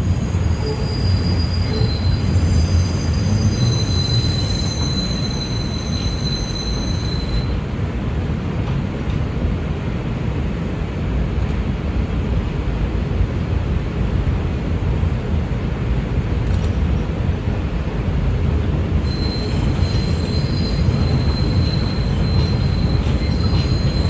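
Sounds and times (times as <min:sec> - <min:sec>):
train wheels squealing: 0:00.0 - 0:07.8, 0:19.0 - 0:24.0
train wheels rumbling on track: 0:00.0 - 0:24.0.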